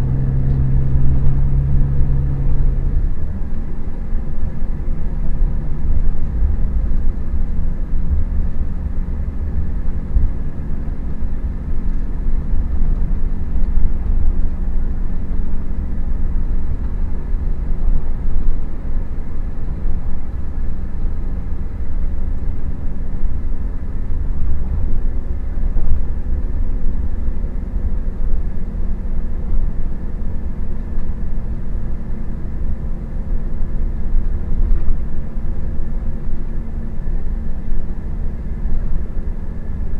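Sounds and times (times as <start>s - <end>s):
diesel engine rumbling: 0.0s - 39.9s.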